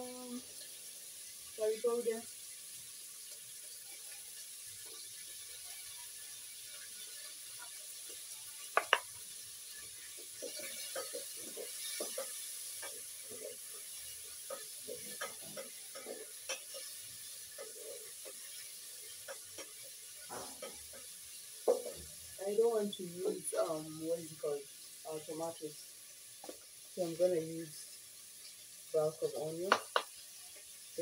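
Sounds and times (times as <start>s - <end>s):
onion sizzling in oil: 0.0s - 31.0s.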